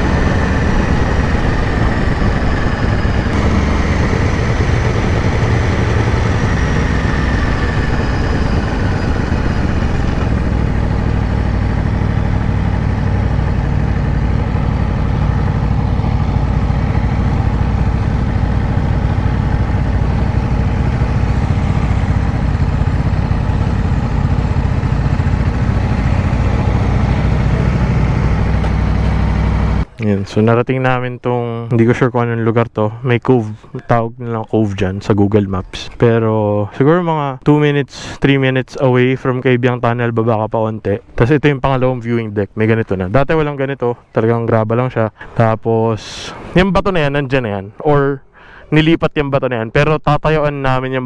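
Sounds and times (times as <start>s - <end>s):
motorcycle engine at low revs: 0.0s - 30.0s.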